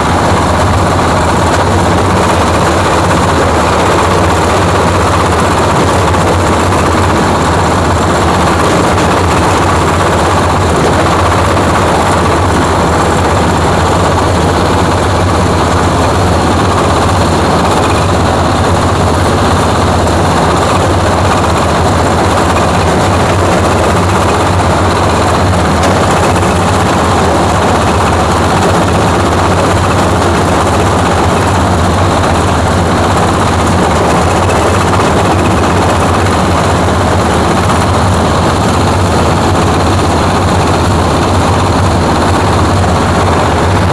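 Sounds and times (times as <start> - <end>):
grinding machine rattling din: 0.0 - 43.9.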